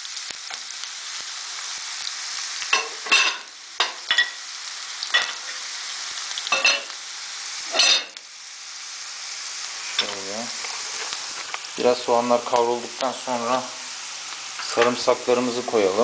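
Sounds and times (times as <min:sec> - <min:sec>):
onions sizzling in a frying pan: 0:00.0 - 0:16.0.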